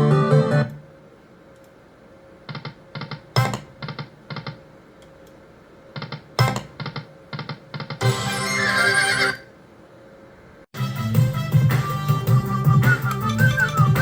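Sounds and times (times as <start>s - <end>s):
slot machine reel tones: 12.4s - 14.0s.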